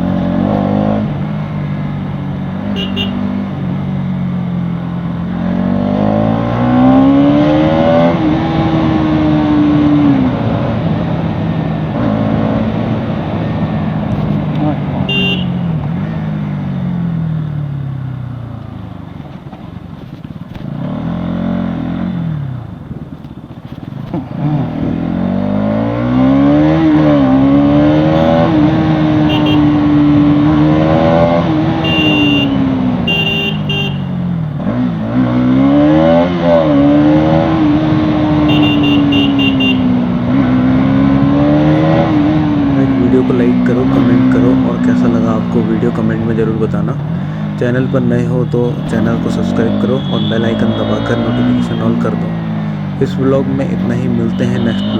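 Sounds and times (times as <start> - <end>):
motorcycle engine accelerating: 0.0 - 47.8
horn beeping: 2.6 - 3.4, 15.0 - 15.8, 29.1 - 30.0, 31.1 - 34.3, 38.3 - 40.1, 47.6 - 52.3, 53.9 - 54.9.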